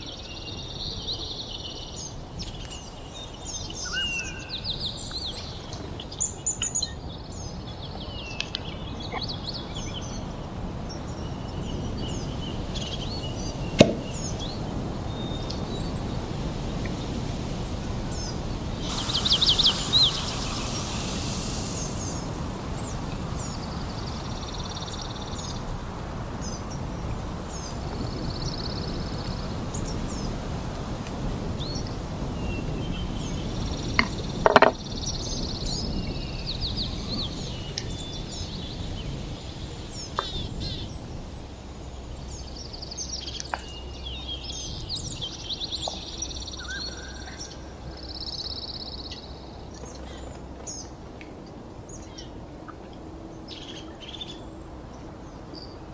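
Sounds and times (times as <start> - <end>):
birds chirping and trilling: 0.0 - 10.3, 10.9 - 16.2, 18.1 - 30.3, 42.3 - 50.9
steady rushing noise: 9.8 - 46.6
sharp knock: 13.8 - 14.1
burst of hiss: 18.1 - 26.4.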